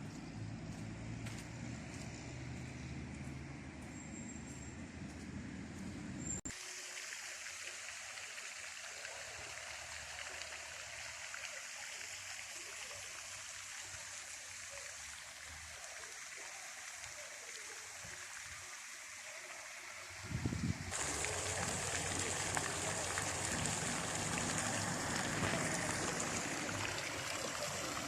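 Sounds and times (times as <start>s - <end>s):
water rushing: 6.5s - 28.0s.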